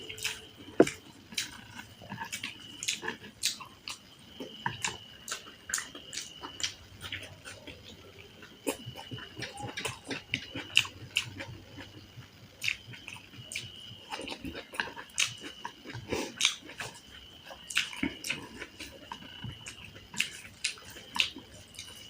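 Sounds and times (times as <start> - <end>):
wet chewing and lip-smacking: 0.1 - 22.0.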